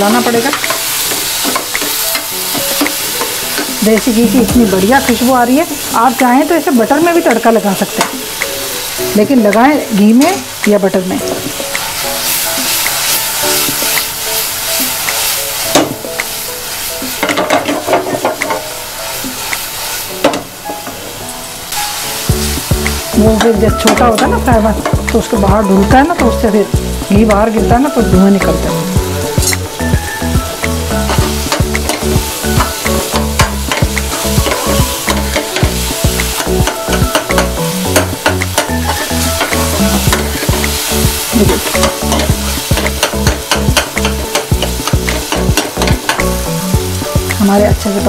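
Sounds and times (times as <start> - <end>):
food sizzling in a frying pan: 0.0 - 48.0
background music with bass line: 22.3 - 48.0
metal spoon clicking against pan: 41.7 - 46.2.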